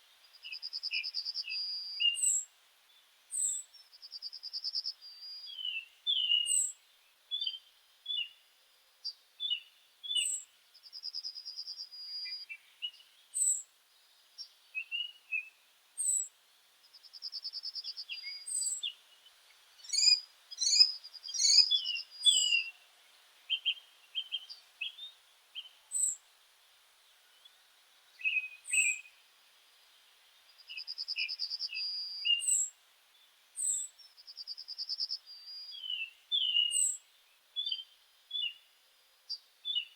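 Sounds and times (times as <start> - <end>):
birds singing and calling: 0.4 - 2.5, 3.3 - 3.8, 4.8 - 8.4, 11.6 - 13.6, 14.4 - 16.3, 17.4 - 19.0, 19.8 - 22.8, 23.5 - 26.2, 27.3 - 29.1, 30.6 - 32.7, 33.6 - 37.0.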